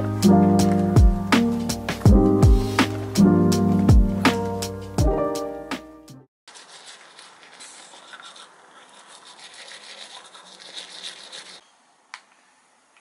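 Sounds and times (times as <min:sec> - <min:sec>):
scratchy rubbing noise: 0:06.5 - 0:11.6.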